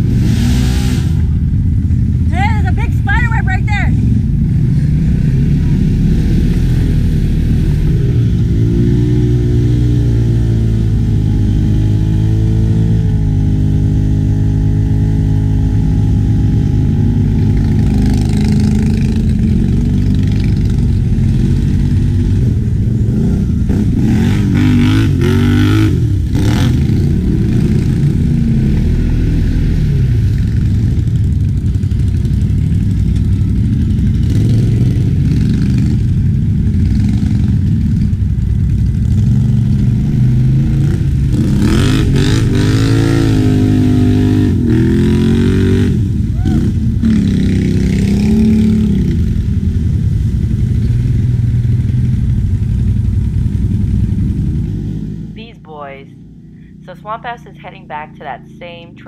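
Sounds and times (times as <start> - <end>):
atv engine revving: 0.0 - 58.9.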